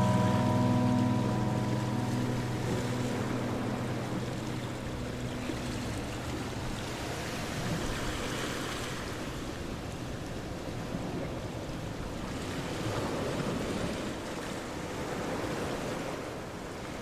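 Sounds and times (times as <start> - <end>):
low background music notes: 0.0 - 8.4
rushing water: 0.0 - 17.0.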